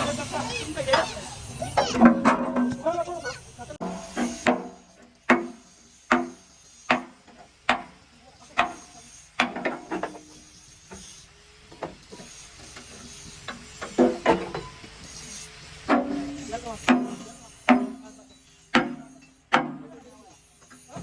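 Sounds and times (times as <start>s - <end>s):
hammer striking metal: 3.8s - 8.0s, 15.9s - 20.0s.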